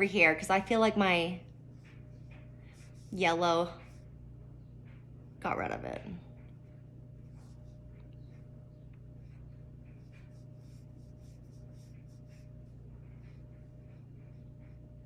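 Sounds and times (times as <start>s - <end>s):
low electrical hum: 0.0s - 15.0s
brush strokes on paper: 1.7s - 4.2s, 6.7s - 15.0s.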